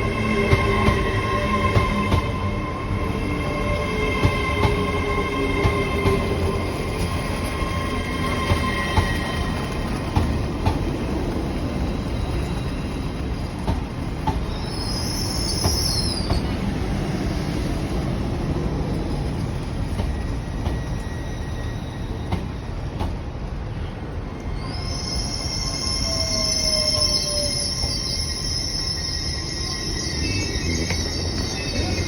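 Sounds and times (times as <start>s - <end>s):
train rumble: 0.0s - 32.0s
high-pitched wheel squeal: 14.5s - 16.5s, 24.4s - 32.0s.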